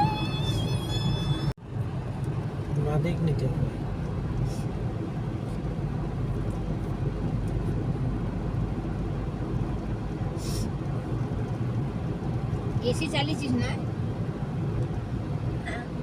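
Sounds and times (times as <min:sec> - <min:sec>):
car road and engine rumble: 0:00.0 - 0:16.0
brief hiss: 0:10.4 - 0:10.7.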